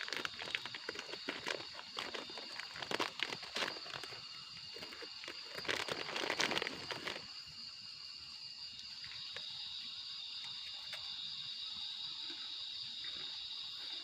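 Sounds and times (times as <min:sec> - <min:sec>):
rustling and crinkling handling: 0:00.0 - 0:07.3
night insects chorus: 0:00.0 - 0:14.0.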